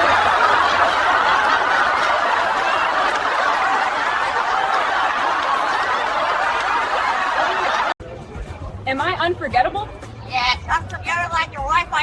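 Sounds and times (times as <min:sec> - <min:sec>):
group of people laughing: 0:00.0 - 0:08.0.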